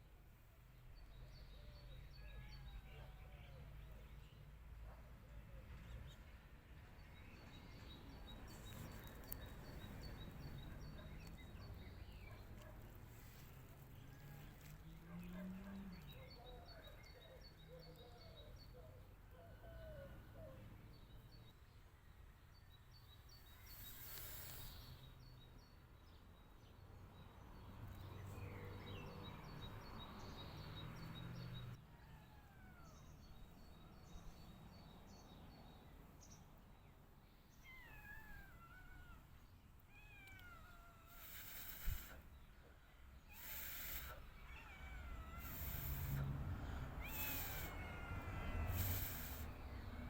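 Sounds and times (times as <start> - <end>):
cat meowing faintly: 31.8 - 33.2, 37.6 - 39.3, 39.9 - 42.2, 43.3 - 46.3, 47.0 - 49.5
faint high chirping: 47.0 - 49.6.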